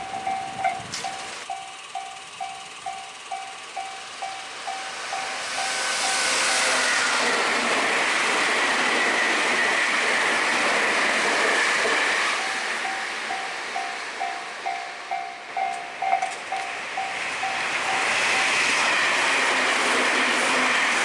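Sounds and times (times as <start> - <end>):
railway warning bell ringing: 0.0 - 9.8, 10.8 - 21.0
electric train passing: 0.0 - 21.0.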